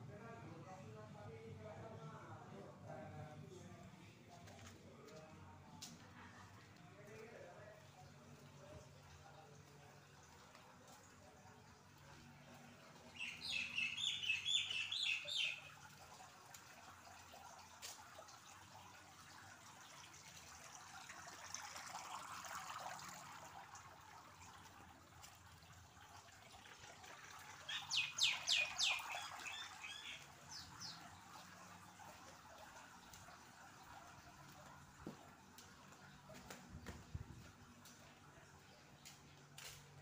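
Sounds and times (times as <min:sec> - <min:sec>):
bird chirping high: 0:13.2 - 0:15.7, 0:27.7 - 0:31.0.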